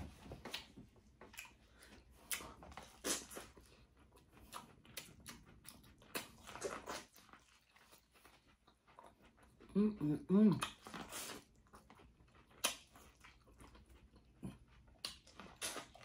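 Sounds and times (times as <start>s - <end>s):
chewing clicks and smacks: 0.4s - 9.7s, 10.6s - 16.0s
sharp cracks while eating: 4.4s - 7.8s, 10.6s - 13.8s, 14.9s - 16.0s.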